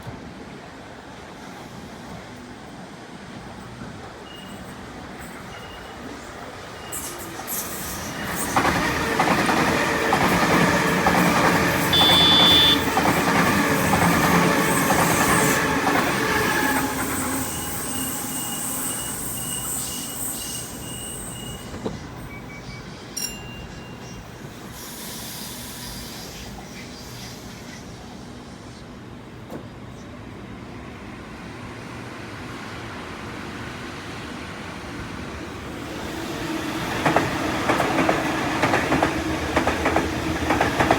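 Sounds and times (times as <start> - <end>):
train passing: 0.0 - 40.9
high wheel squeal: 11.8 - 12.9, 16.4 - 27.5.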